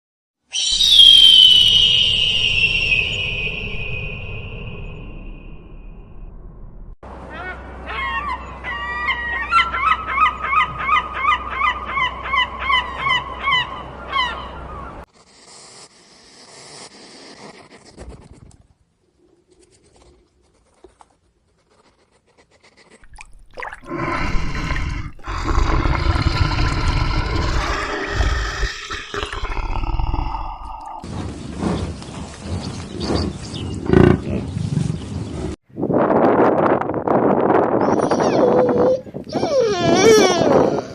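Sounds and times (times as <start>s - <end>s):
rough noisy animal sound: 9.0s - 23.1s, 23.8s - 35.6s.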